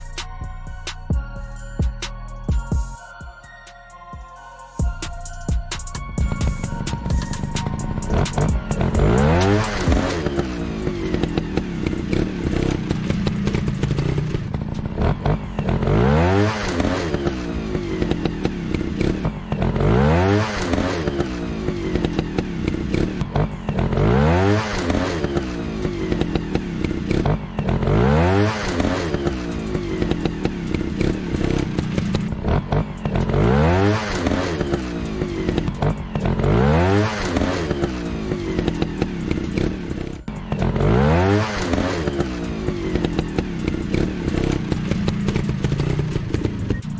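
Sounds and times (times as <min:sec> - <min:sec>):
motorcycle engine revving: 0:05.9 - 0:46.9.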